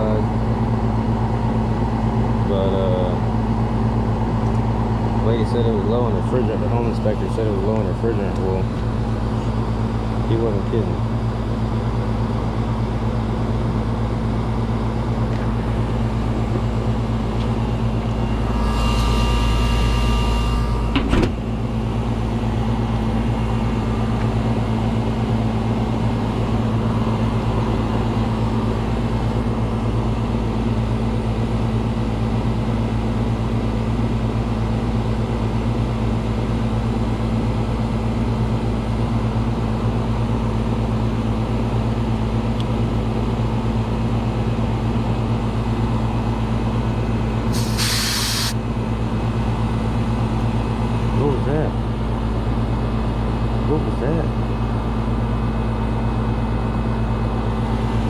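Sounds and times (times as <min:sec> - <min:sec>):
air conditioner humming: 0:02.3 - 0:31.6
hiss with faint whistle: 0:47.5 - 0:48.6.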